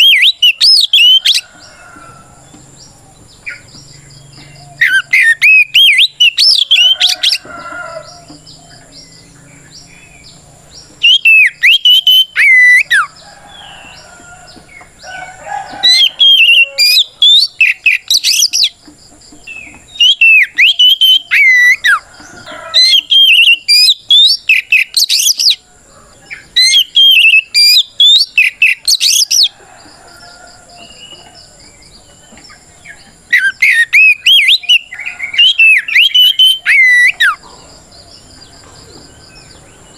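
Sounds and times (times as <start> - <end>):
magpie-robin singing whistled phrases: 0.0 - 1.4, 4.8 - 7.4, 11.0 - 13.0, 19.9 - 22.0, 22.8 - 25.6, 26.6 - 29.5, 33.3 - 37.4.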